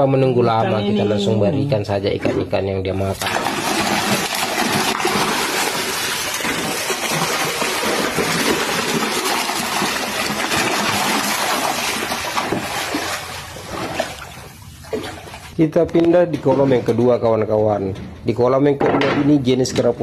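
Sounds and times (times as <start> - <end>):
water splashing and churning: 3.2 - 15.6.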